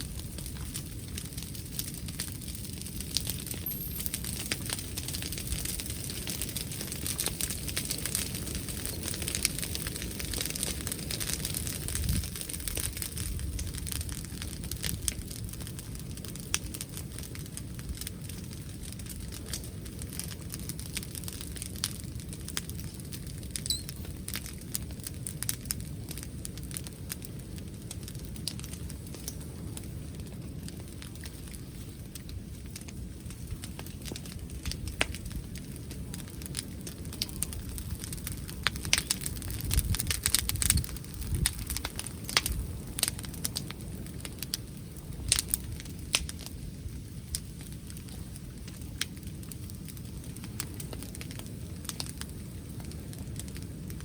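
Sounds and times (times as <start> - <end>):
bonfire crackling and popping: 0.0 - 54.0
wind rumble on microphone: 0.0 - 54.0.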